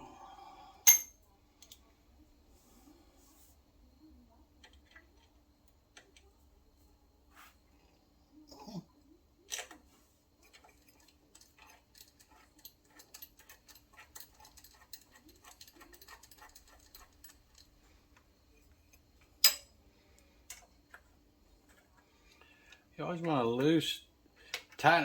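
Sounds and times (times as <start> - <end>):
sharp metal clack: 0.9 - 1.2.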